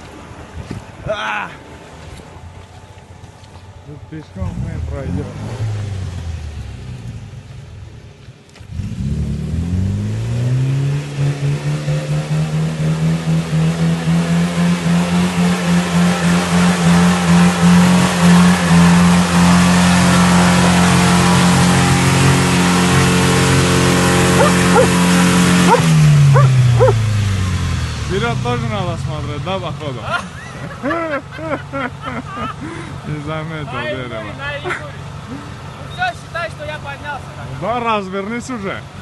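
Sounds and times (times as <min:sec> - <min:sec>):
engine revving high: 0:04.5 - 0:07.1, 0:08.7 - 0:29.5.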